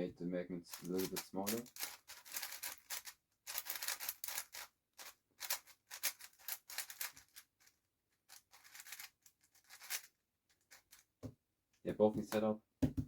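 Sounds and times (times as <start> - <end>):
puzzle cube clicking and rattling: 0.7 - 11.1.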